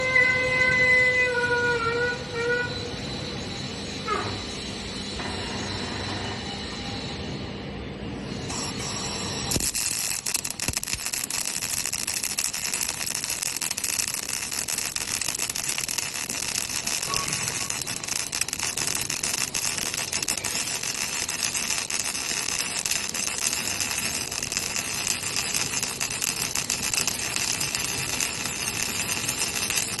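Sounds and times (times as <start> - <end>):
welding arc crackling: 8.5 - 30.0.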